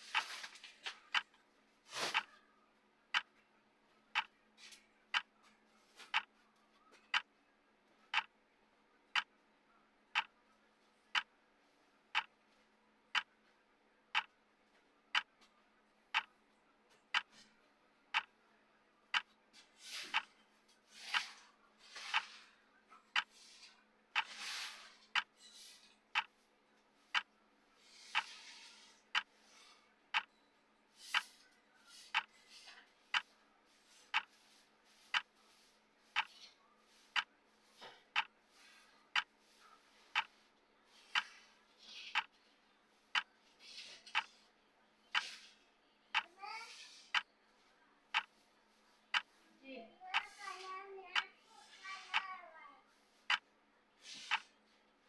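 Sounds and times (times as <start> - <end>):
timer ticking: 3.1 - 3.4, 4.1 - 4.4, 5.1 - 5.3, 6.1 - 6.3, 8.1 - 8.3, 9.1 - 9.3, 10.1 - 10.4, 11.1 - 11.3, 12.1 - 12.4, 13.1 - 13.3, 14.1 - 14.4, 15.1 - 15.4, 16.1 - 16.4, 17.1 - 17.4, 18.1 - 18.4, 19.1 - 19.4, 20.1 - 20.3, 21.1 - 21.3, 23.1 - 23.3, 24.2 - 24.4, 25.1 - 25.4, 26.1 - 26.4, 27.1 - 27.3, 29.1 - 29.4, 30.1 - 30.4, 31.1 - 31.3, 32.1 - 32.4, 33.1 - 33.3, 34.1 - 35.5, 36.1 - 36.4, 37.1 - 37.3, 38.1 - 38.4, 39.1 - 39.4, 40.1 - 41.4, 42.1 - 42.4, 43.1 - 43.4, 44.1 - 44.3, 45.1 - 45.4, 47.1 - 47.3, 48.1 - 48.4, 49.1 - 49.4, 50.1 - 50.4, 52.1 - 52.3, 53.2 - 53.5, 54.2 - 54.5.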